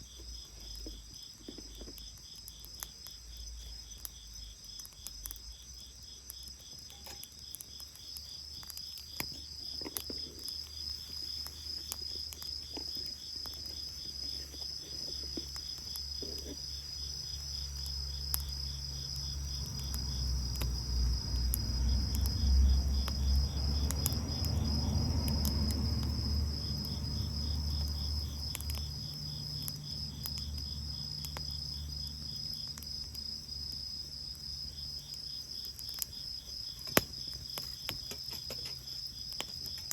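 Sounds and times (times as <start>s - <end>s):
bonfire crackling: 0.0s - 39.9s
crickets chirping: 0.0s - 39.9s.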